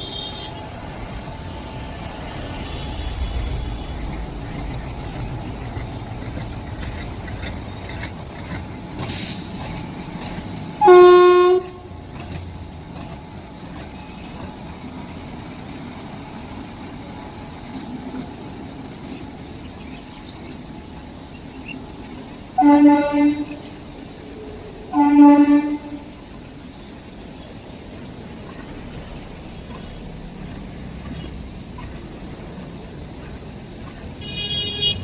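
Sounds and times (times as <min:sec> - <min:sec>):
train horn blast: 0:00.0 - 0:00.8, 0:10.7 - 0:12.4, 0:22.6 - 0:23.8, 0:24.9 - 0:26.2, 0:34.2 - 0:35.0
train rumbling: 0:00.0 - 0:35.0.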